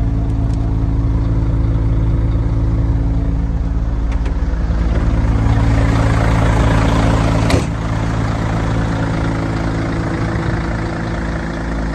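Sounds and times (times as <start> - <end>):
truck diesel engine idling: 0.0 - 11.9.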